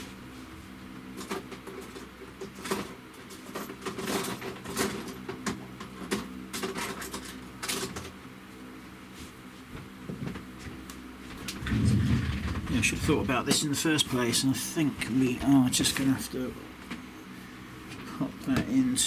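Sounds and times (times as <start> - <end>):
low hum: 11.5 - 13.6.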